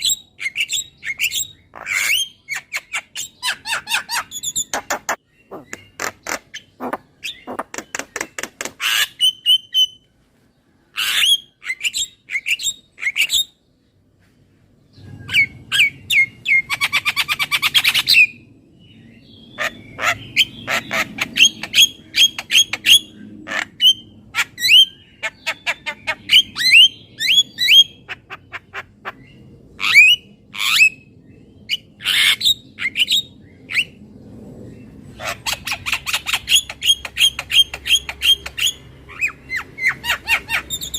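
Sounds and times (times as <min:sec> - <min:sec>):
myna squawking and chirping: 0:00.0 - 0:10.0, 0:19.5 - 0:31.0, 0:35.1 - 0:40.9.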